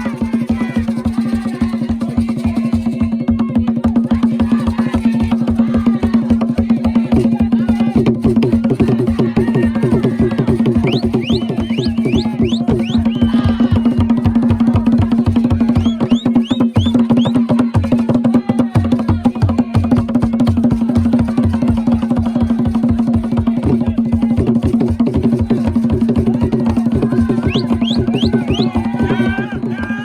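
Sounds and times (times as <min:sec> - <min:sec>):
fast dense drumming: 0:00.0 - 0:30.0
short rising shrill calls: 0:10.8 - 0:13.9, 0:27.4 - 0:28.8.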